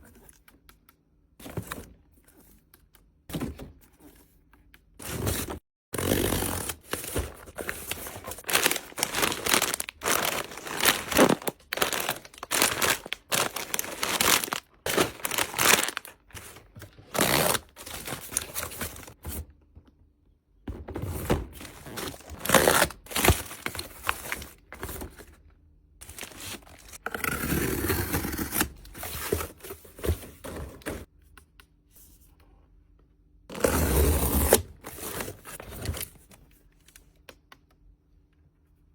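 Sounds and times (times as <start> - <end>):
plastic wrappers crinkling: 6.7 - 19.2, 21.6 - 25.2, 26.0 - 27.0.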